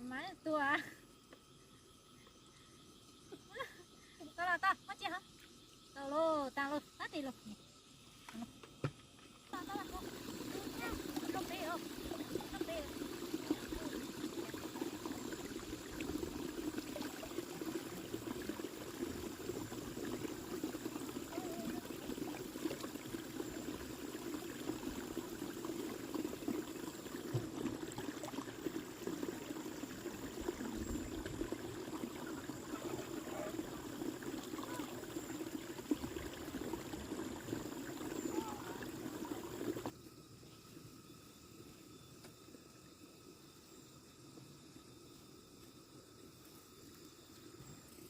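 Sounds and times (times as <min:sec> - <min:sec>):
water flowing: 0:09.4 - 0:40.0.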